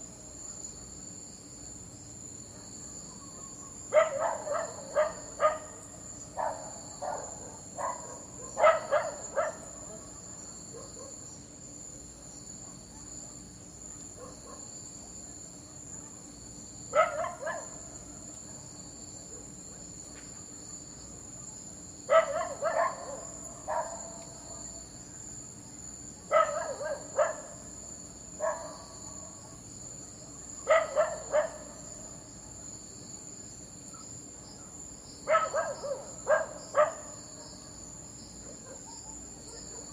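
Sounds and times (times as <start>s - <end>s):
crickets chirping: 0.0s - 39.9s
dog barking: 3.9s - 5.8s, 6.4s - 11.3s, 12.6s - 13.2s, 13.9s - 14.7s, 16.9s - 17.8s, 22.1s - 24.8s, 26.3s - 27.7s, 28.4s - 29.6s, 30.6s - 31.8s, 35.2s - 37.8s, 38.4s - 39.9s.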